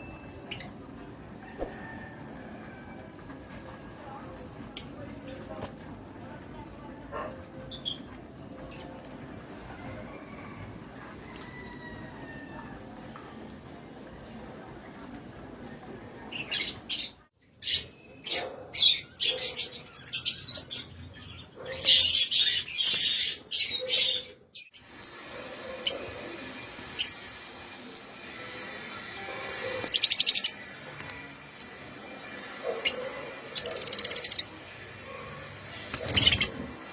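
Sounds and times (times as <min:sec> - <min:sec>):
lovebirds chirping shrilly: 0:35.6 - 0:36.9.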